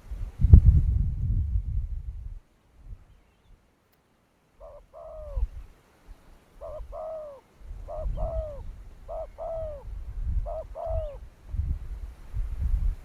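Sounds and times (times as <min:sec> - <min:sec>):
dove cooing: 0:04.6 - 0:05.7, 0:06.5 - 0:11.3.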